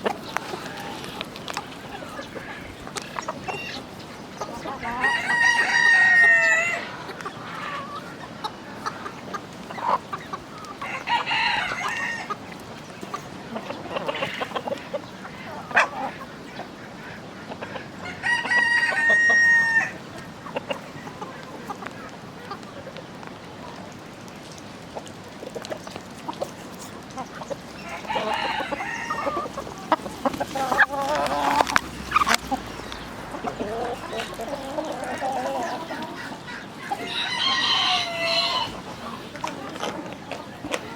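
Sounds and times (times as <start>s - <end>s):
hens clucking: 0.0s - 40.9s
rooster crowing: 4.9s - 6.9s, 10.8s - 12.3s, 18.0s - 20.0s, 27.8s - 29.7s, 37.0s - 38.8s.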